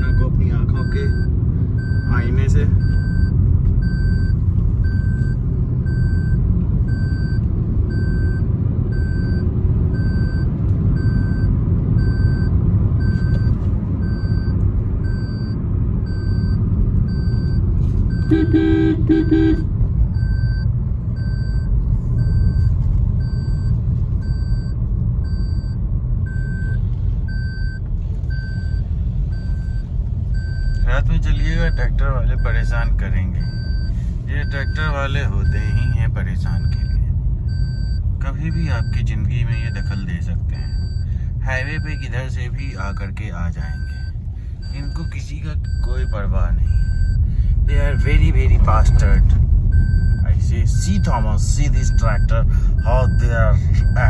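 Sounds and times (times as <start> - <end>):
car road and engine rumble: 0.0 - 54.0
electronic warning beep: 0.0 - 54.0
vehicle horn: 18.2 - 19.7.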